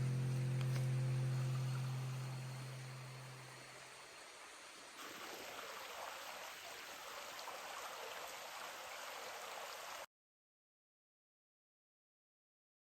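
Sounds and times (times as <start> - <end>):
running water: 0.0 - 10.1.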